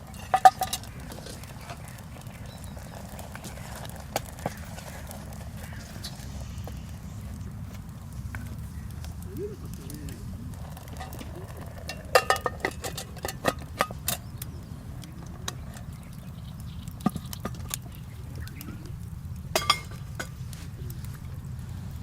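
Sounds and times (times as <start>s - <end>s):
metal utensils clinking on cookware: 0.0s - 1.9s, 10.6s - 14.3s, 19.5s - 20.4s
steady low rumble: 0.0s - 22.0s.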